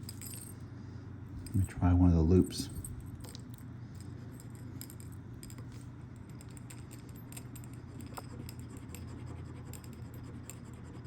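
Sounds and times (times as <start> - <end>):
steady low hum: 0.0 - 11.0
metal ring clicking and scraping: 2.6 - 11.0.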